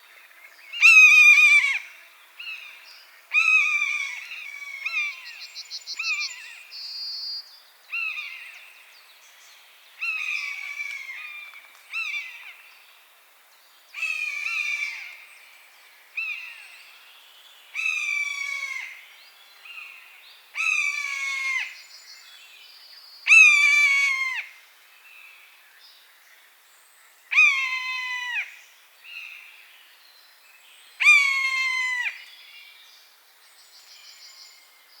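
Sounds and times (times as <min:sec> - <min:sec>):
songbird trill: 0:00.2 - 0:13.1, 0:25.0 - 0:35.0.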